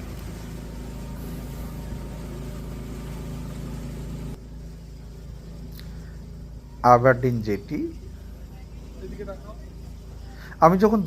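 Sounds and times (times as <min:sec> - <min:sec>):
rushing water hiss: 0:00.0 - 0:04.4
speedboat engine hum: 0:00.0 - 0:11.0.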